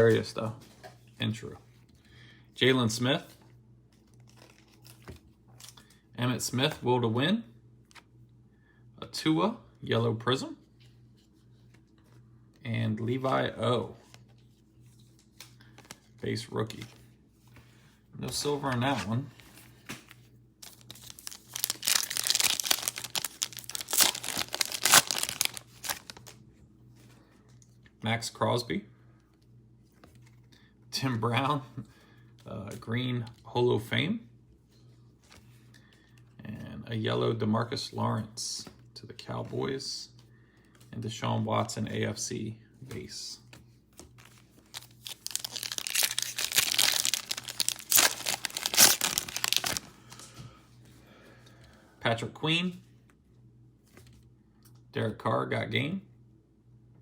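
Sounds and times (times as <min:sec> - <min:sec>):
foil wrapper crinkling and tearing: 0:20.6 - 0:26.4, 0:44.2 - 0:50.3.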